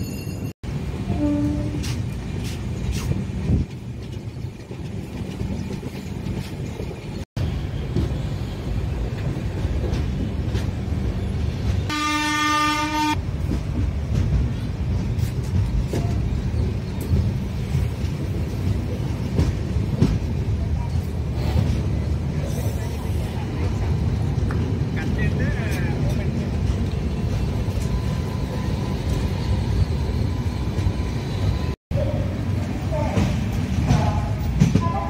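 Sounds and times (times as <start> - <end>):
train rail noise: 0.0 - 35.0
train horn blast: 1.1 - 1.9, 11.9 - 13.2.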